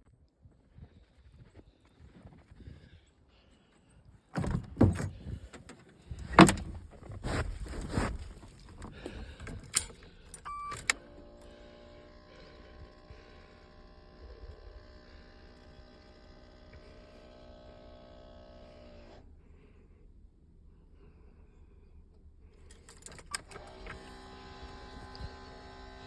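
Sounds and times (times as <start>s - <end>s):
faint steady hum: 3.0s - 26.0s
clunks and rattles: 4.3s - 11.0s
short steady beep: 10.4s - 10.9s.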